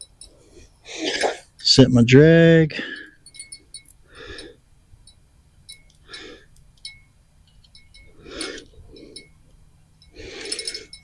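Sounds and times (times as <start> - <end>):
soft breaths: 2.7 - 4.8, 6.0 - 6.6, 7.8 - 11.0.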